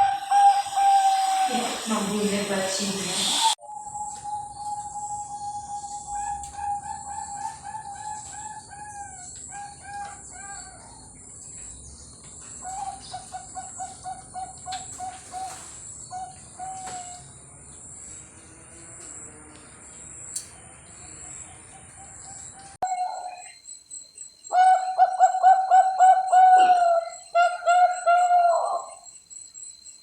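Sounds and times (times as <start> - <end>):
dove cooing: 0.0 - 2.5, 3.3 - 11.1, 12.6 - 17.3, 21.0 - 23.5, 24.5 - 29.0
steady high-pitched whine: 0.0 - 18.2.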